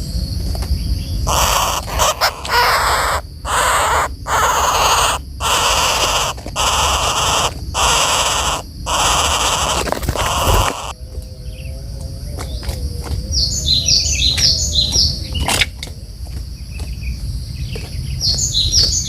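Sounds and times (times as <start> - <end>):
woodpecker rasping calls: 1.2 - 11.0.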